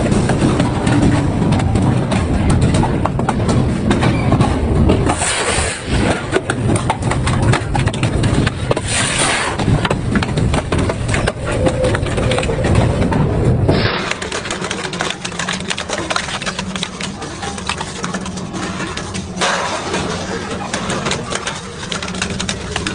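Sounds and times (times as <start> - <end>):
heavy low rumble: 0.0 - 22.9
shredder cracking and crunching metal: 12.2 - 22.9.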